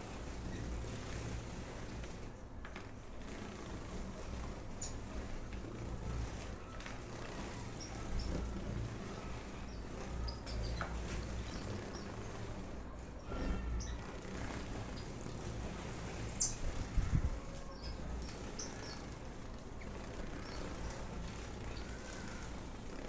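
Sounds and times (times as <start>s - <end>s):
birds chirping: 3.2s - 23.0s.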